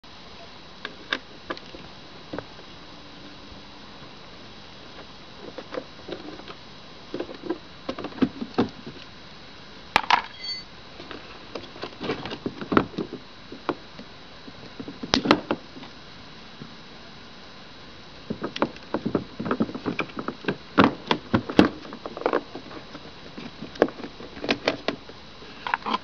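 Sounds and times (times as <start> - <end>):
sharp metallic clink: 10.2 - 10.7.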